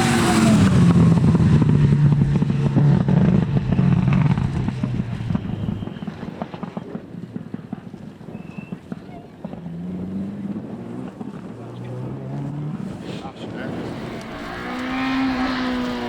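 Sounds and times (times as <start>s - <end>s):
rally car passing at speed: 0.0s - 5.2s, 9.6s - 16.0s
engine crackles: 0.0s - 16.0s.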